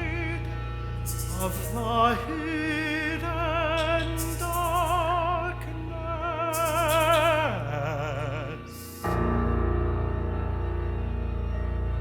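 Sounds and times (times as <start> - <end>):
operatic tenor singing: 0.0 - 9.4
chamber orchestra drone: 0.0 - 12.0.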